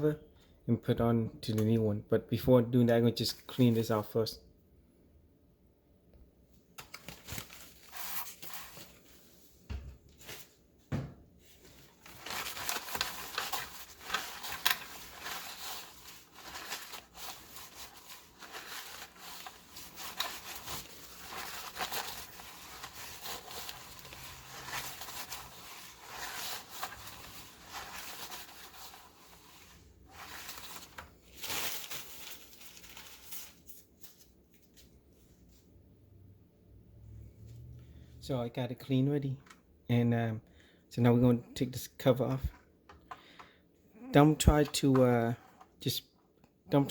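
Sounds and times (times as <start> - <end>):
rubbing and wiping: 11.5 - 32.6.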